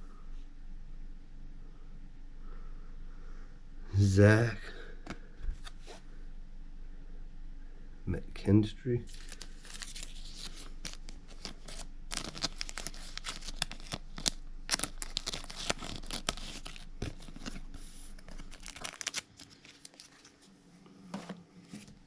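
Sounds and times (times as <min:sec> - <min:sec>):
wrapper tearing and crinkling: 0:09.1 - 0:20.3.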